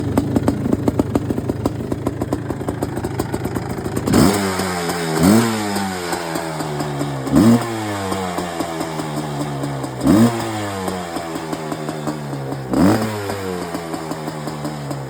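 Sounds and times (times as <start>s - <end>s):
engine idling unevenly: 0.0s - 15.0s
engine revs blipped: 4.1s - 14.8s.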